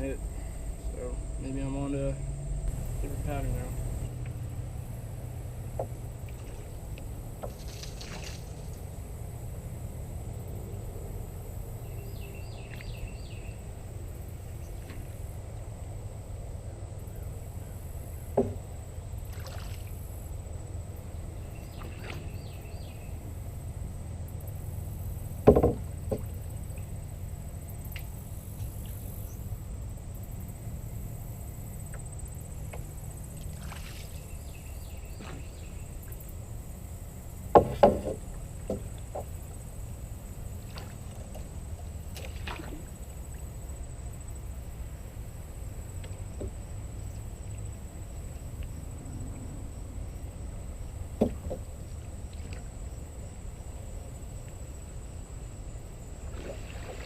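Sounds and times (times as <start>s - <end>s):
steady low hum: 0.0s - 57.0s
sharp knocks on boat: 5.5s - 8.8s, 18.3s - 19.8s, 25.3s - 26.9s, 32.7s - 36.3s, 37.3s - 39.6s, 46.0s - 46.9s, 51.1s - 52.7s.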